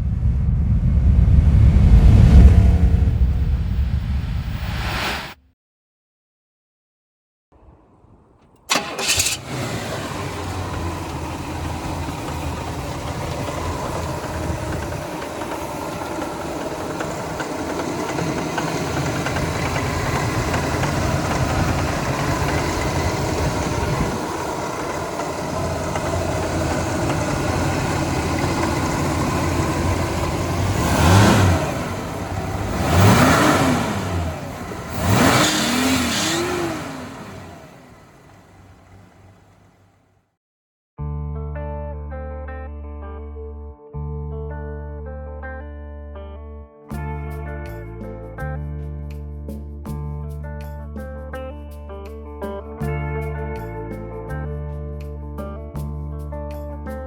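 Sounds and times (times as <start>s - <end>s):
car engine revving: 0.5s - 5.4s, 8.7s - 39.9s
car engine idling: 8.6s - 40.0s.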